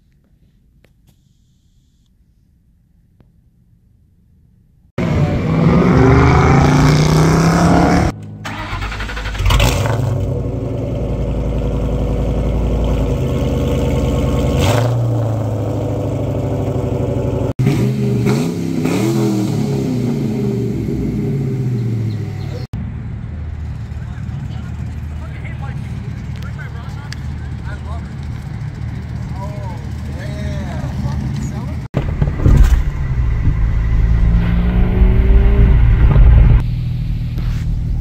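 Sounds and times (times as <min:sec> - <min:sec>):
car engines revving: 0:05.0 - 0:38.0
car engine idling: 0:08.2 - 0:17.5, 0:21.0 - 0:34.4.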